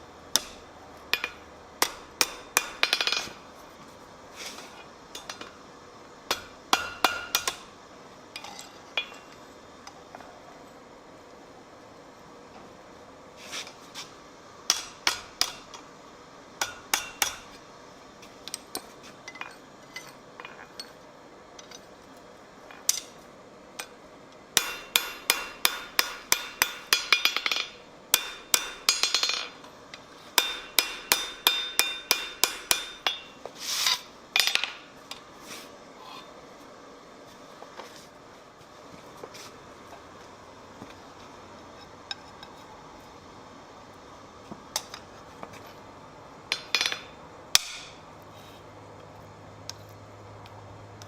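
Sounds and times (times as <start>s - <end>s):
hammer striking steel on anvil: 0.3s - 3.2s, 6.3s - 7.6s, 14.7s - 15.7s, 16.6s - 17.5s, 24.6s - 29.6s, 30.4s - 33.4s, 46.5s - 48.0s.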